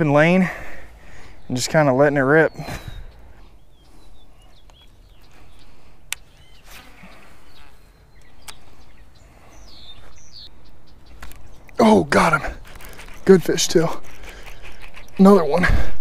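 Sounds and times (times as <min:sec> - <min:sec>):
small birds chirping: 0:00.0 - 0:16.0
sharp clicks: 0:07.6 - 0:08.7.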